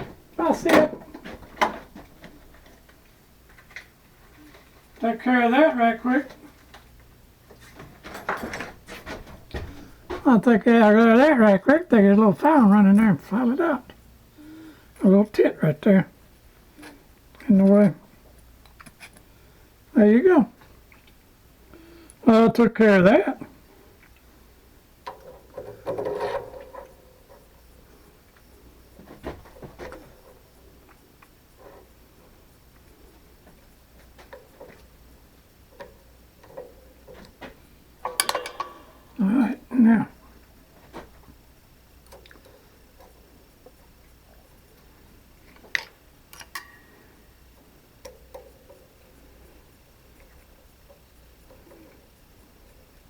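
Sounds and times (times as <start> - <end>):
low steady hum: 0.0 - 53.0
knocks and clicks of tools: 35.8 - 39.2.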